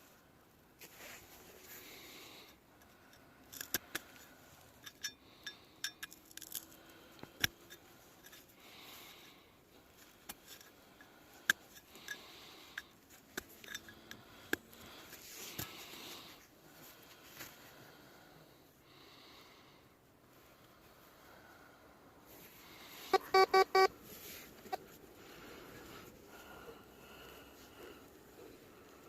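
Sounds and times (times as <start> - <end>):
soft breaths: 0.0 - 29.0
small hard objects clinking: 5.9 - 6.8.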